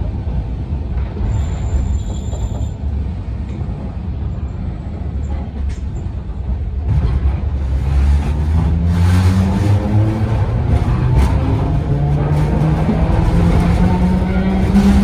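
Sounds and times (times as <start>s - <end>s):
railcar wheels rumbling: 0.0s - 15.0s.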